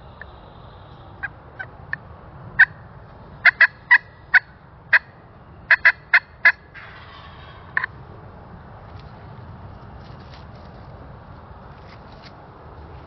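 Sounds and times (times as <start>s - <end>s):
steady low hiss: 0.0s - 13.0s
turkey clucking: 3.4s - 5.1s, 5.7s - 7.9s.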